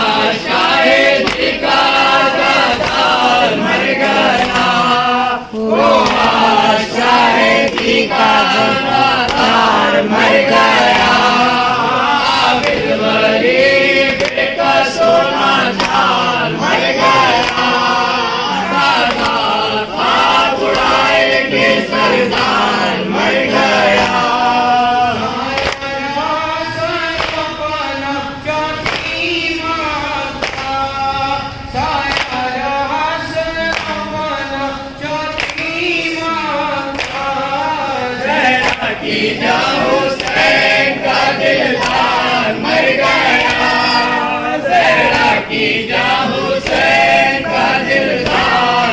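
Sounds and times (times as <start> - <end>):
group singing a lament: 0.0 - 48.9
chest-beating slaps: 1.1 - 1.6, 9.2 - 9.8.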